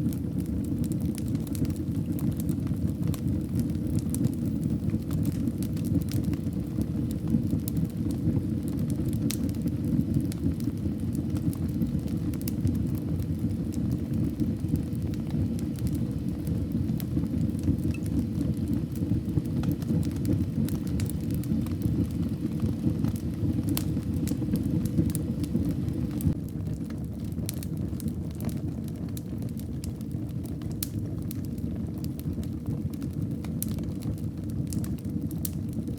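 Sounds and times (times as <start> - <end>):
fire crackling and popping: 0.0 - 35.9
wood fire rumbling: 0.0 - 35.9.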